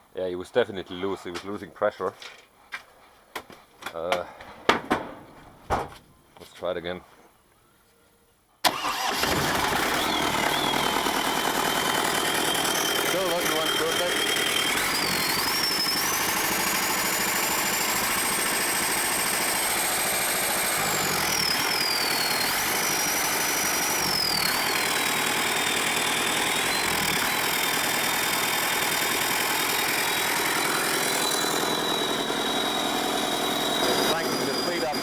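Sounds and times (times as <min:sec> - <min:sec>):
diesel generator running: 0:08.7 - 0:35.0.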